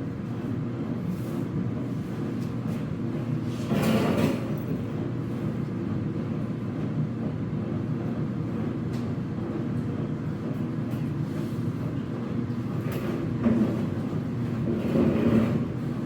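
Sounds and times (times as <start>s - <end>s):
dryer drum rumbling grind: 7.2s - 16.0s.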